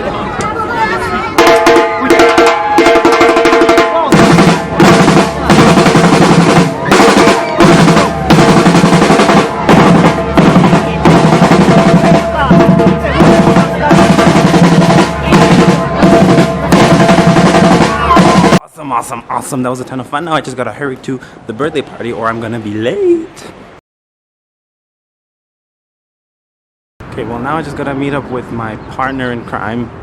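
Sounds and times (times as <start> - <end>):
drum ensemble playing: 1.3 - 18.6
bass drums: 1.4 - 18.6
snare drum rolls: 1.4 - 18.6.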